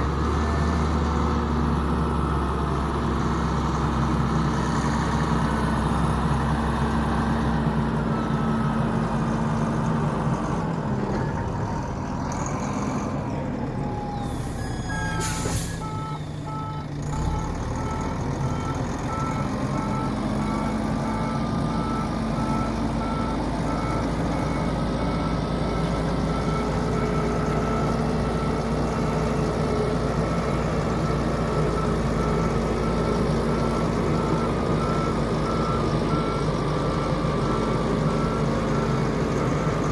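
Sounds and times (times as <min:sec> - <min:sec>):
diesel engine running: 0:00.0 - 0:39.9
backup alarm beeping: 0:13.9 - 0:18.0.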